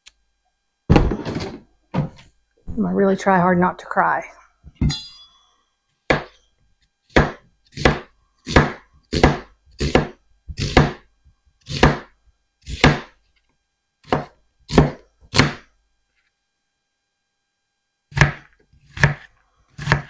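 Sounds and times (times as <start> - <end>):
knife chopping onion on cutting board: 6.1 - 6.4, 7.1 - 13.2, 14.0 - 15.7, 18.1 - 20.0.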